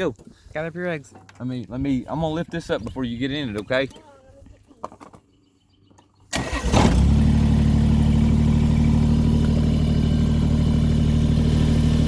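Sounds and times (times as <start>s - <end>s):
tractor engine idling: 6.3s - 12.0s.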